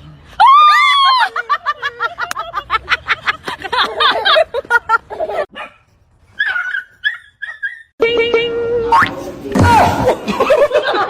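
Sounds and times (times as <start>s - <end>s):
dog barking: 5.5s - 7.8s.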